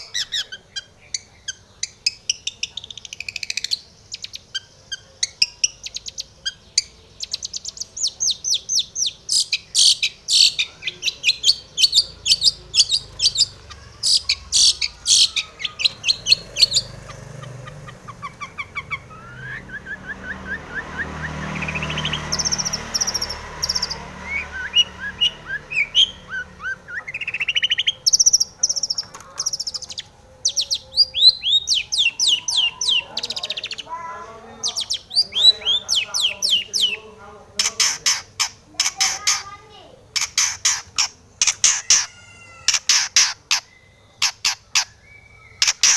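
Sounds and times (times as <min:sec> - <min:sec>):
bird trill: 0:00.0 - 0:45.9
bird singing sharp high notes: 0:01.5 - 0:34.0.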